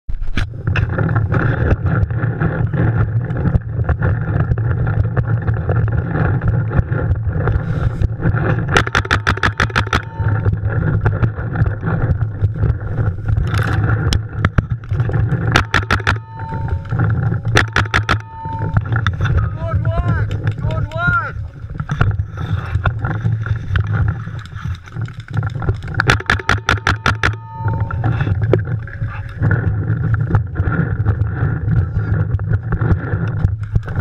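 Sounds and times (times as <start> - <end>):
low rumble: 0.2 - 34.0
paintball markers firing: 8.7 - 10.1, 15.5 - 16.3, 17.5 - 18.3, 26.0 - 27.4.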